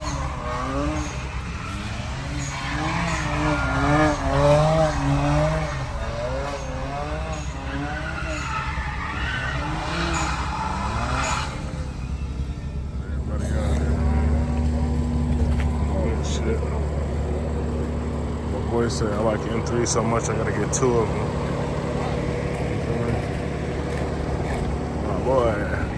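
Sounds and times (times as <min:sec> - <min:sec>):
car engine revving hard: 0:00.0 - 0:25.9
tyre squeal: 0:00.0 - 0:25.9.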